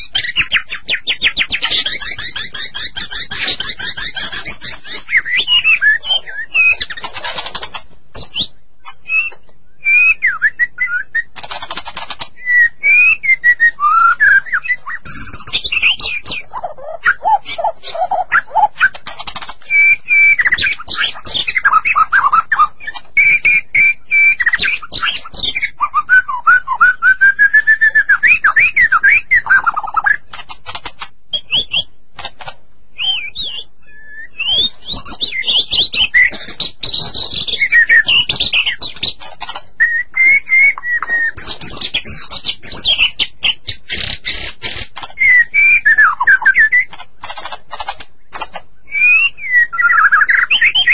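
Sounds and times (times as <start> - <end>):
bird singing whistled song: 0.0 - 7.3, 8.1 - 11.4, 12.2 - 30.2, 31.3 - 31.9, 32.9 - 47.0, 48.8 - 50.9.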